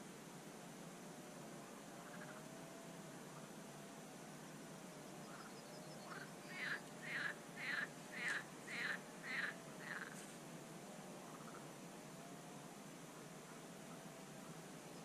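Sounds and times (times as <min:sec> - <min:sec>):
faint steady hiss: 0:00.0 - 0:15.0
bird harsh calls: 0:06.0 - 0:10.2.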